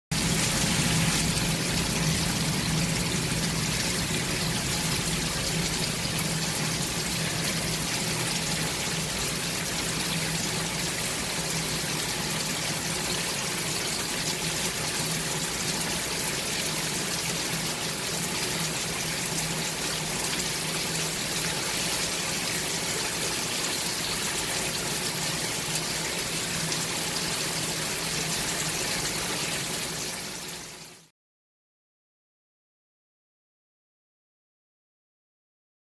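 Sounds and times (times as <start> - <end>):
shower water spraying: 0.2 - 10.5.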